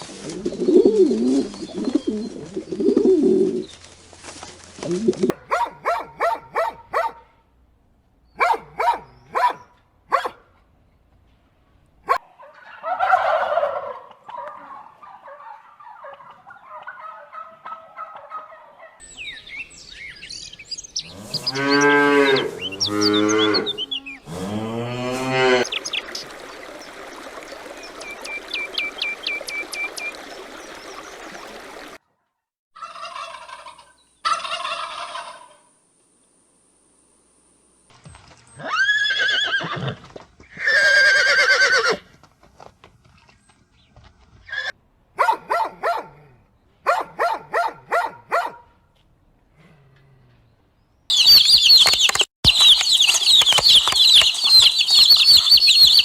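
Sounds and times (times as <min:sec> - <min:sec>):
bird calls: 0:00.0 - 0:04.0, 0:14.3 - 0:24.5, 0:25.6 - 0:32.0, 0:51.1 - 0:56.0
turkey gobbling: 0:12.4 - 0:19.0, 0:32.8 - 0:35.6
cow mooing: 0:21.1 - 0:25.7.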